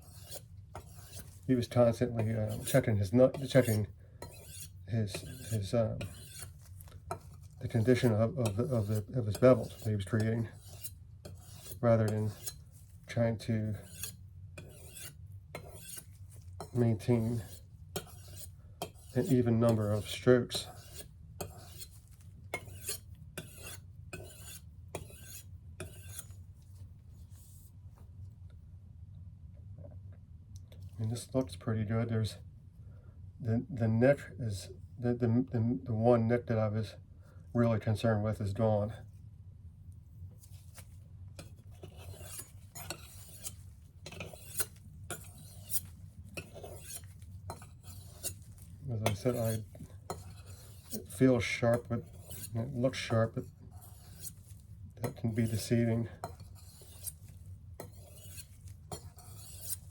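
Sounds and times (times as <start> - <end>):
knife scraping on sharpening stone: 0.0 - 12.8, 13.4 - 26.4, 41.4 - 59.9.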